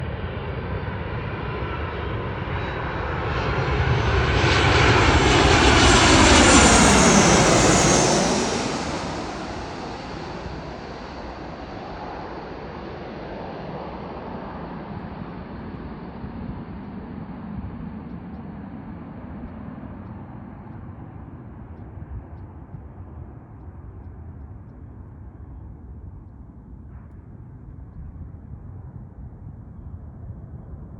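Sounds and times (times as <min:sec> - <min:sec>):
airliner passing overhead: 0:00.0 - 0:30.9
jet engine whine sliding down: 0:04.0 - 0:22.8.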